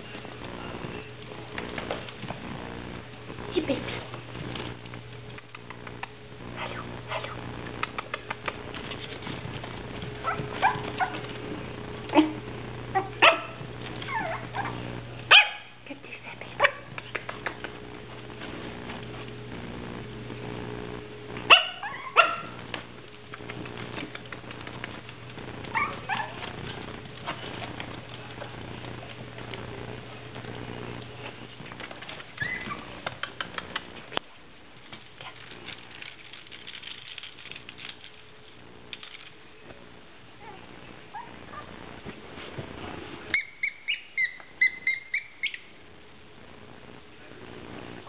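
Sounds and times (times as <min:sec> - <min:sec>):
puppy paws clicking and pattering: 0:00.0 - 0:12.4, 0:13.0 - 0:14.9, 0:16.0 - 0:19.6, 0:21.3 - 0:39.8
puppies yipping: 0:13.0 - 0:14.8, 0:21.5 - 0:22.6, 0:25.7 - 0:26.5, 0:32.4 - 0:33.6, 0:43.3 - 0:45.7.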